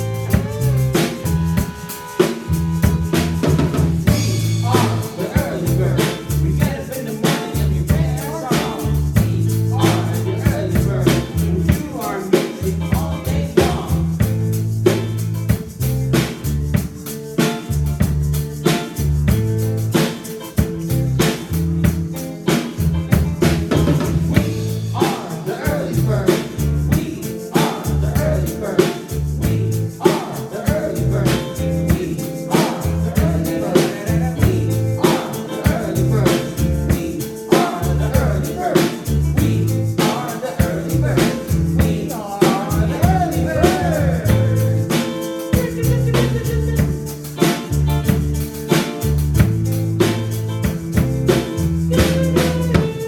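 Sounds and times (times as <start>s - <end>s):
bass line: 0.0s - 53.0s
drum kit beat: 0.0s - 53.0s
electric guitar: 0.0s - 53.0s
person singing: 4.1s - 14.3s, 24.4s - 47.6s.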